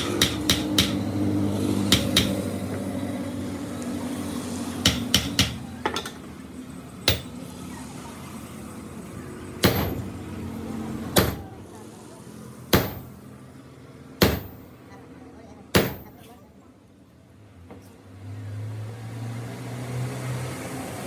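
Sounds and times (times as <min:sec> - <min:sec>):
metal parts and tools clinking: 0:07.1 - 0:07.4, 0:09.6 - 0:10.2, 0:12.8 - 0:13.2, 0:14.2 - 0:14.6, 0:15.8 - 0:16.2.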